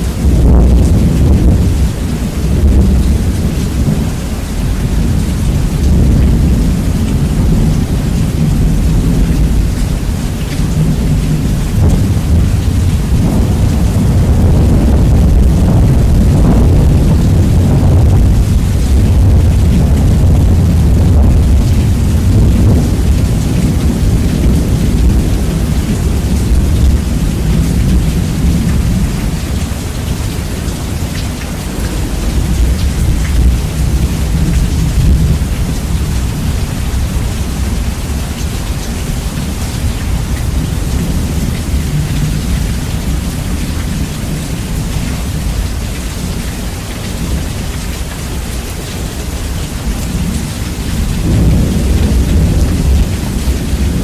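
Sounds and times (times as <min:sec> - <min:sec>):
rumbling thunder: 0:00.0 - 0:48.6, 0:49.2 - 0:54.0
steady rain: 0:00.0 - 0:54.0.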